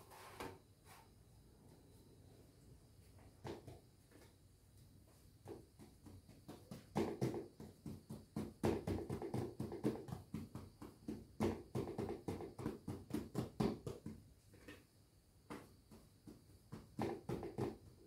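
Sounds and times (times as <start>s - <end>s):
hands patting dough: 5.0s - 18.0s.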